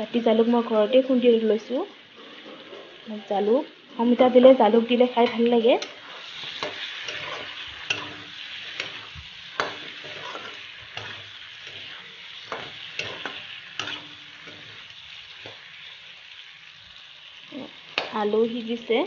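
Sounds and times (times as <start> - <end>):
food sizzling in oil: 0.0 - 19.0
metal spatula scraping pan: 2.1 - 3.0, 5.0 - 15.7.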